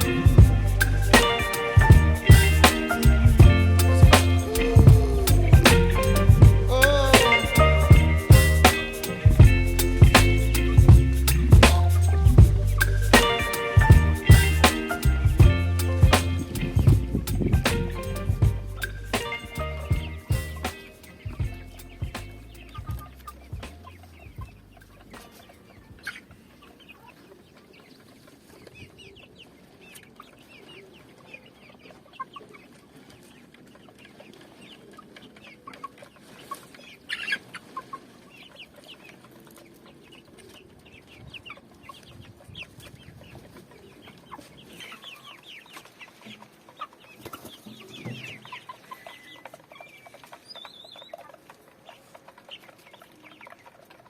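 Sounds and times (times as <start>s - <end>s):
chickens clucking: 17.4s - 54.0s.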